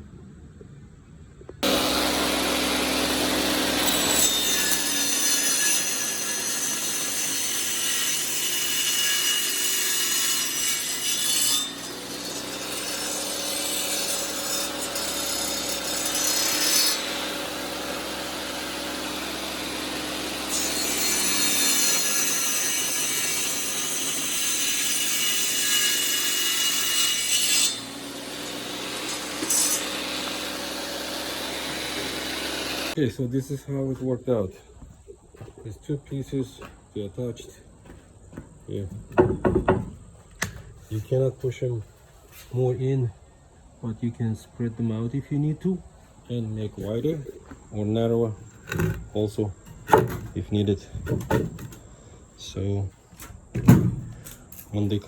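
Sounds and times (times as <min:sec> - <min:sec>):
bench saw cutting wood: 0:01.6 - 0:33.0, 0:46.8 - 0:51.8.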